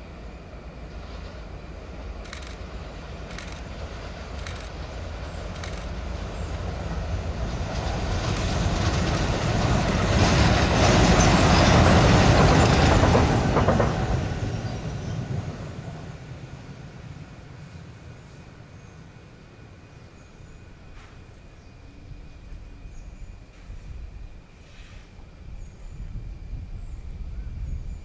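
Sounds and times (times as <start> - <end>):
diesel locomotives passing: 0.0 - 28.0
wheels clicking over rail joints: 2.0 - 16.2.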